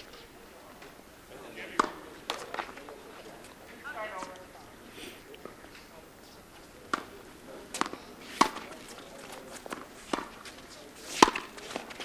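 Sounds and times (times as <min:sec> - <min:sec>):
paddle hitting ball: 0:01.8 - 0:02.8, 0:07.8 - 0:08.8, 0:11.1 - 0:12.0.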